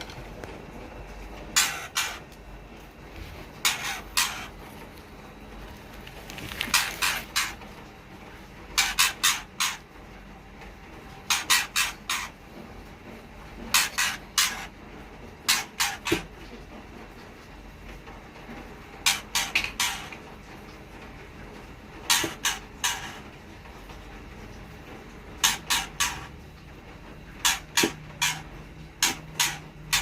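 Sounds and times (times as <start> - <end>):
nestlings raspy begging calls: 1.6 - 2.3, 3.6 - 4.6, 6.7 - 7.6, 8.8 - 9.8, 11.3 - 12.3, 13.7 - 14.7, 19.1 - 20.2, 22.1 - 23.2, 25.4 - 26.3, 27.4 - 30.0.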